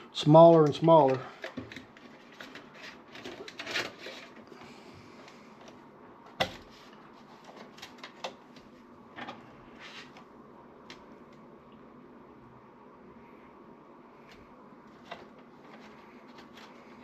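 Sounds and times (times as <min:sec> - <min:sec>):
cables and plastic parts rustling: 0:00.2 - 0:10.3, 0:14.2 - 0:17.0.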